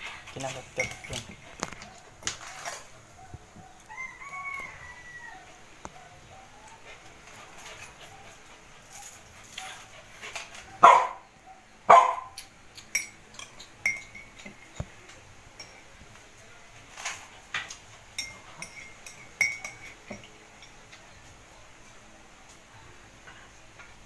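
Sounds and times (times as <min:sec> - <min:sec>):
cutlery clinking on dishes: 0:00.3 - 0:03.0, 0:12.8 - 0:15.9, 0:16.9 - 0:21.1
dog barking: 0:10.7 - 0:12.4.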